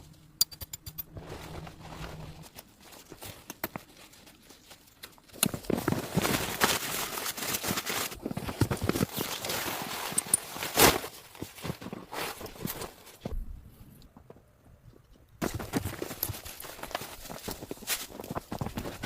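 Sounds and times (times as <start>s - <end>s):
footsteps crunching through snow: 1.1s - 4.4s.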